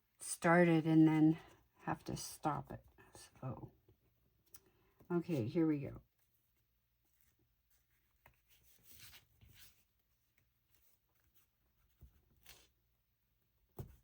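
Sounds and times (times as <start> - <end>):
paper rustling: 6.2 - 12.8.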